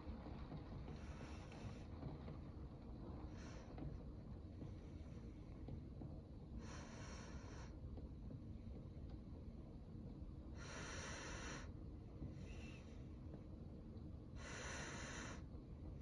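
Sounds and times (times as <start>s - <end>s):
breathy hiss: 6.6s - 7.8s, 10.6s - 11.7s, 14.4s - 15.5s.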